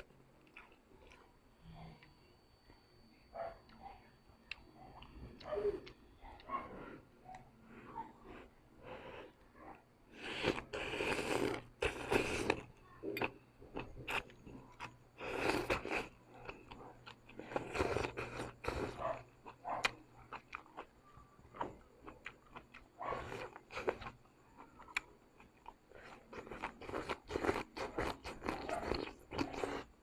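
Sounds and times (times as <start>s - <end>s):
chewing and biting noodles: 10.1s - 30.0s.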